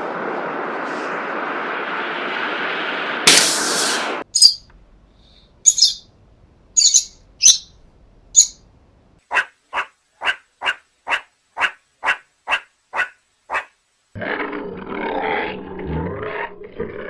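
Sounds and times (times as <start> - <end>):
bird chirping: 4.3 - 4.7, 5.6 - 6.1, 6.8 - 8.6.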